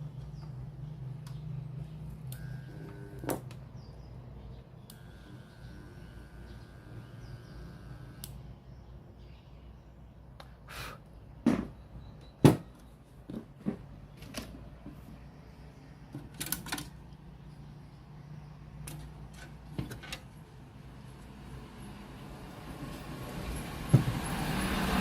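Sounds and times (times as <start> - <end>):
steady low hum: 0.0 - 10.4
knocks and clicks of handling: 18.8 - 20.3.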